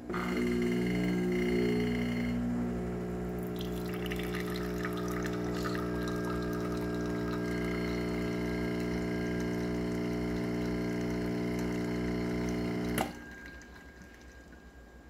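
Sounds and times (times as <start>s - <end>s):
espresso machine pump humming: 0.0s - 13.3s
machine shutting off click: 7.4s - 13.2s.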